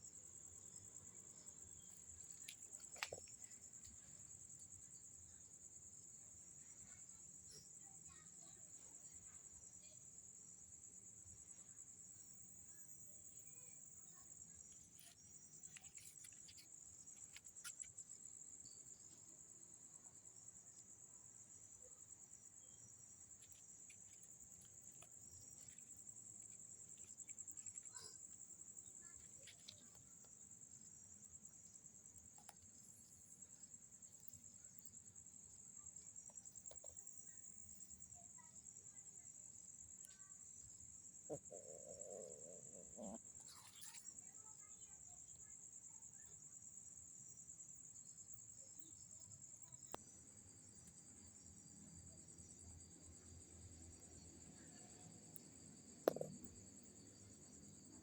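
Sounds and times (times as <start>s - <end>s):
crickets chirring: 0.0s - 58.0s
faint clicks and ticks: 22.6s - 30.8s, 32.2s - 33.4s.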